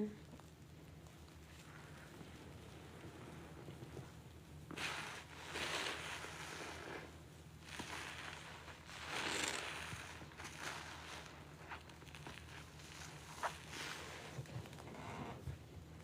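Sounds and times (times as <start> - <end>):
sponge squelching: 4.7 - 14.5.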